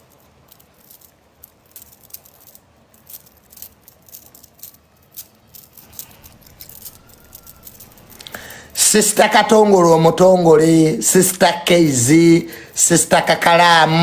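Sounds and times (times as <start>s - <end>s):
faint clicks and rustles: 0.0s - 10.3s
low hiss: 0.0s - 14.0s.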